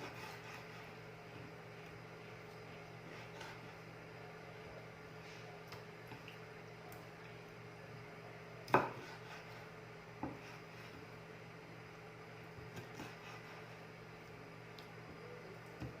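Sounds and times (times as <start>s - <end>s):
faint steady hum: 0.0s - 16.0s
knife chopping on cutting board: 8.7s - 9.6s, 10.2s - 11.0s.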